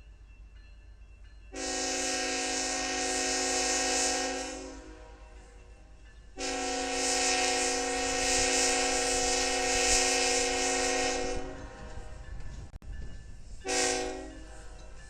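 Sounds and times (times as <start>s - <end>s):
locomotive air horn chord: 1.5s - 5.4s, 6.4s - 12.2s, 13.6s - 14.4s.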